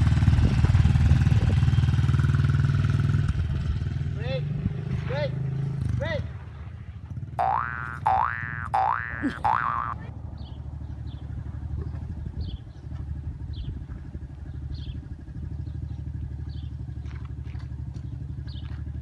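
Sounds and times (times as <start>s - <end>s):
dirt bike engine running: 7.4s - 11.5s.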